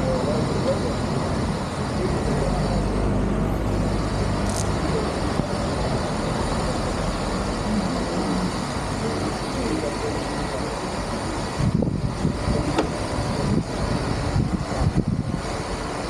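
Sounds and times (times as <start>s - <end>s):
vehicle rumble with rushing hiss: 0.0s - 16.0s.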